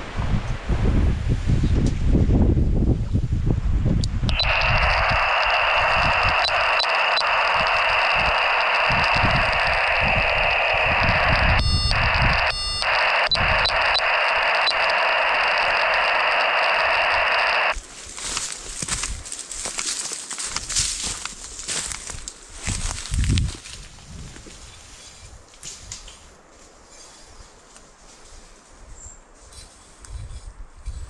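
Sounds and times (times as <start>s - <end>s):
faint clicks: 4.0s - 17.8s
radio static hissing: 4.1s - 17.8s
short beeps: 4.3s - 17.6s.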